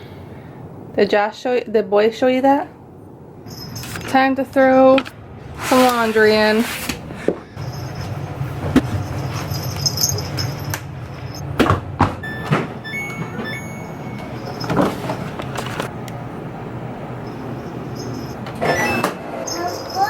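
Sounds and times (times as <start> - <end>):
steady low hum: 0.0 - 18.6
washing machine drum and door clunks: 10.4 - 15.9
short beeps: 12.2 - 14.7.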